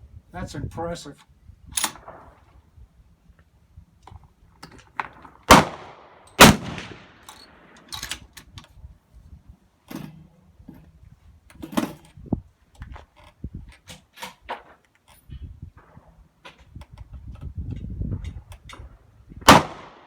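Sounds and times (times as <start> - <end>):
suppressed rifle shots: 5.5 - 7.3, 19.5 - 20.0.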